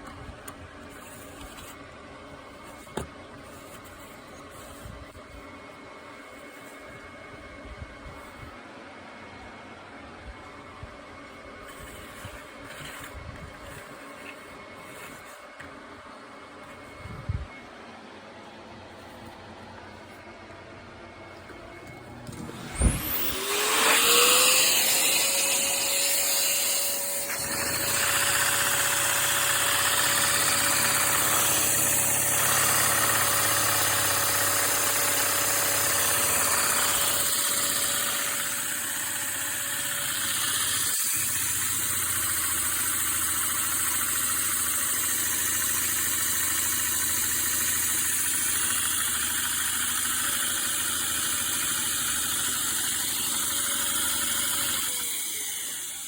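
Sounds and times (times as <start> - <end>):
model engine whine: 21.5 - 56.0.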